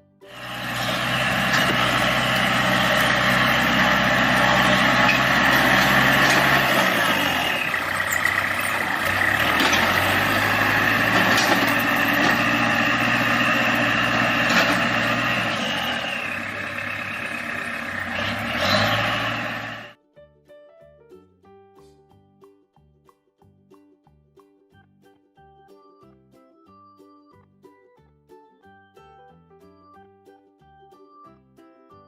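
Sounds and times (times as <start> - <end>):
tractor engine running: 0.3 - 20.0.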